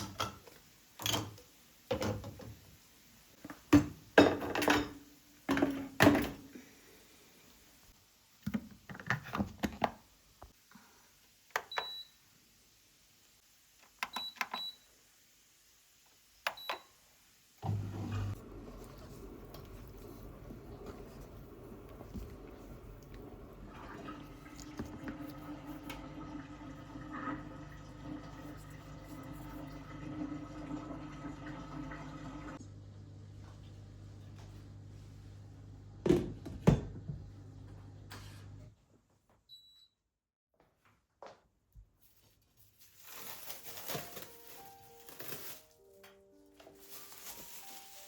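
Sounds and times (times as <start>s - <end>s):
kitchen knocks and clatters: 0.0s - 2.6s, 3.4s - 6.5s
appliance humming: 17.6s - 38.7s.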